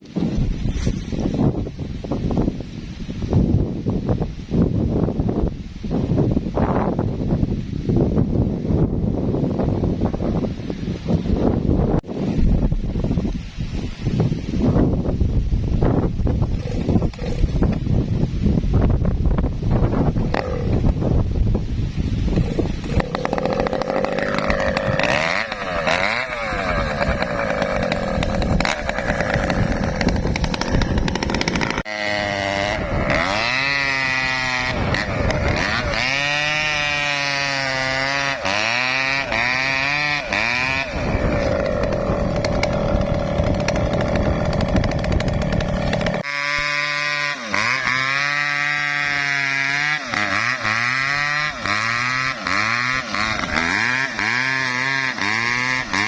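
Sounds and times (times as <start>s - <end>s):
chainsaw cutting a tree: 16.0s - 18.1s, 19.8s - 21.2s, 22.0s - 56.0s.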